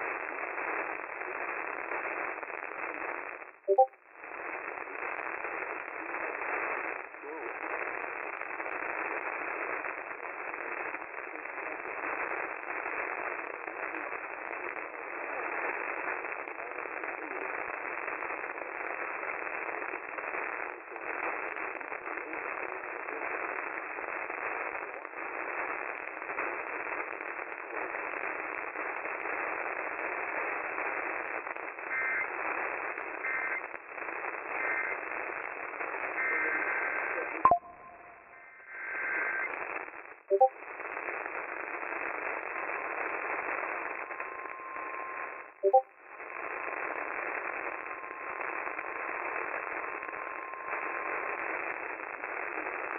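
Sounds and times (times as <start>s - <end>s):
radio static hiss: 0.0s - 52.9s
faint two-tone beeps: 3.7s - 4.0s, 37.5s - 38.5s, 40.3s - 40.6s, 44.2s - 45.9s.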